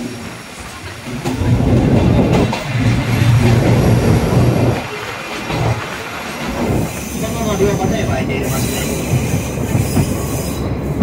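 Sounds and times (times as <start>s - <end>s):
train wheels rumbling in tunnel: 0.0s - 11.0s.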